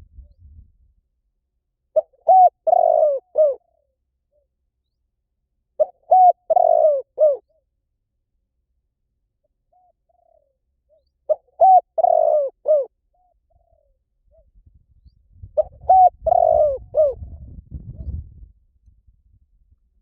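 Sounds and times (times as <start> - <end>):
low rumble: 0.0 - 1.0
dove cooing: 2.0 - 4.4, 5.8 - 7.6, 9.7 - 14.4, 15.6 - 18.2.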